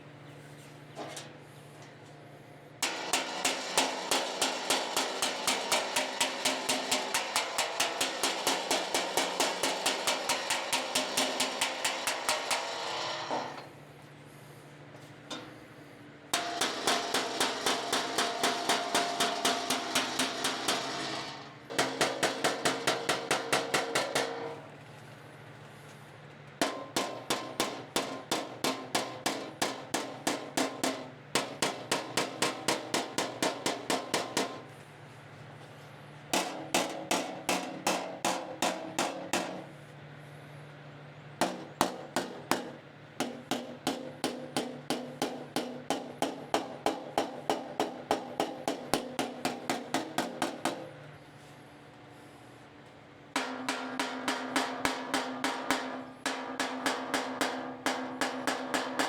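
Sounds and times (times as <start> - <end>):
hammer striking metal panel: 2.8 - 13.6, 16.3 - 24.6, 26.6 - 34.7, 36.3 - 39.7, 41.4 - 50.9, 53.4 - 59.0.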